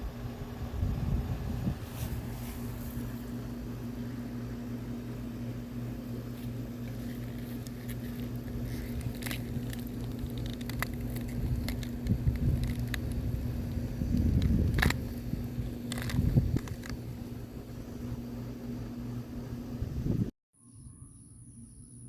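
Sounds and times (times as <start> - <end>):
low mechanical hum: 0.0 - 22.0
rumble: 0.0 - 22.0
small clicks and crackles: 6.4 - 17.2.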